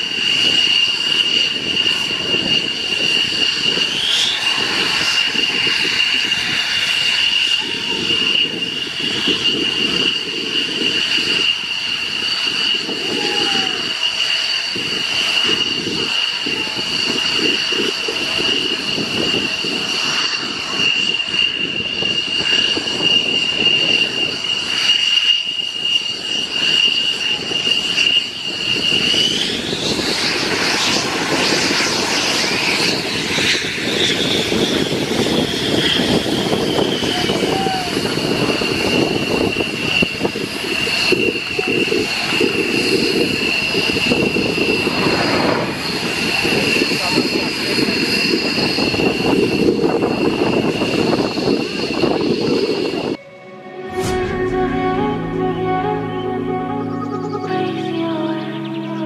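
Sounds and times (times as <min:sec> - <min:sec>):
aircraft engine whine: 0:00.0 - 0:59.0
rumbling noise: 0:43.5 - 0:47.2, 0:53.1 - 0:57.4.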